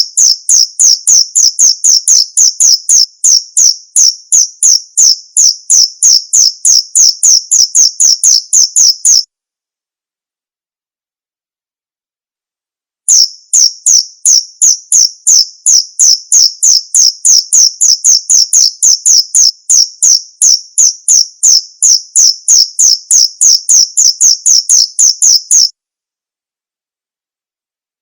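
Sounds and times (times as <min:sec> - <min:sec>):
cricket chirping: 0:00.0 - 0:09.2, 0:13.1 - 0:25.7.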